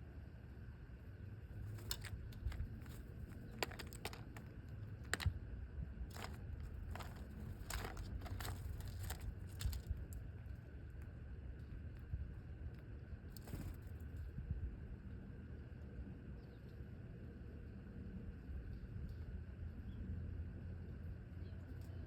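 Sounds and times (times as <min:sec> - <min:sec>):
low steady rumble: 0:00.0 - 0:22.0
bird pecking and cracking seed: 0:01.6 - 0:12.1, 0:12.7 - 0:14.0.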